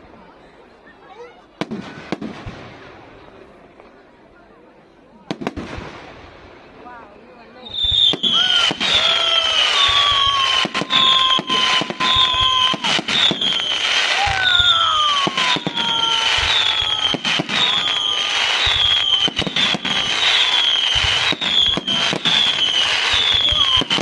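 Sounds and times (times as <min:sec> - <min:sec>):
fireworks bangs and crackles: 0:01.5 - 0:04.3, 0:05.1 - 0:24.0
low gliding whistles: 0:07.7 - 0:24.0
high falling whistle: 0:07.8 - 0:24.0.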